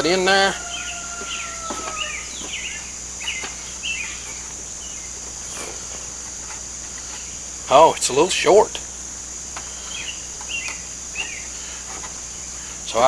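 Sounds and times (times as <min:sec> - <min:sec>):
bird chirping: 0:00.0 - 0:09.0, 0:09.6 - 0:13.0
high-pitched insect drone: 0:00.0 - 0:13.0
faint knocks: 0:00.7 - 0:02.7.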